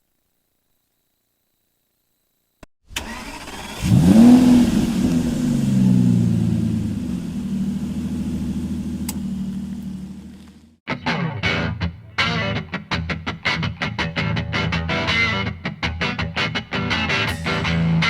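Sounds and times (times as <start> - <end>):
car engine idling: 3.0 - 10.8
click: 9.0 - 10.6.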